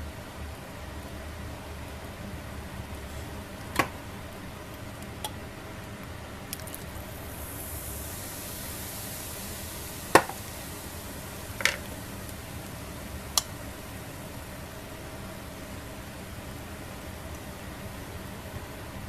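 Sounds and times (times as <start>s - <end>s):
meat sizzling on grill: 0.1s - 19.0s.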